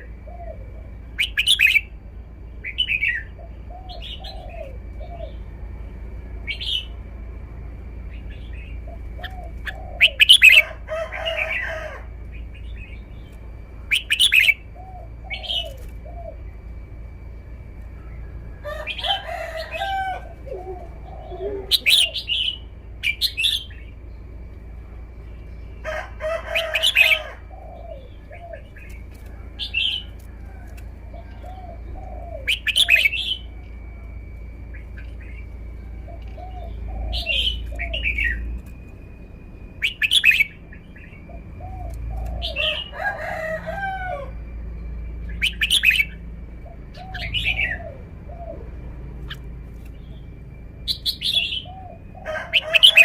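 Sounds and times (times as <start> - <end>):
faint steady high tone: 0.0 - 53.0
bulbul singing loud phrases: 18.8 - 24.0, 31.2 - 34.0, 34.7 - 38.5, 50.9 - 53.0.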